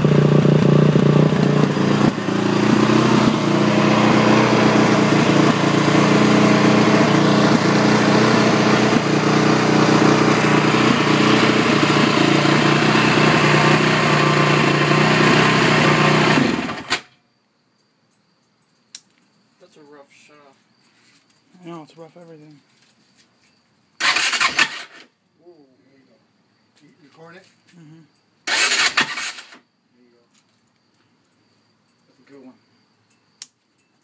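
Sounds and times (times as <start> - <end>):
engine running at rough idle: 0.0 - 16.9.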